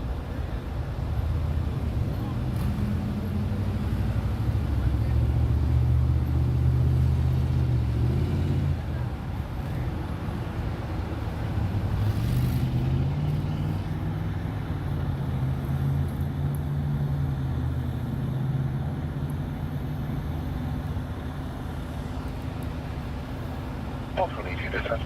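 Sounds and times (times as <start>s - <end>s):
car engine humming: 12.8s - 25.0s.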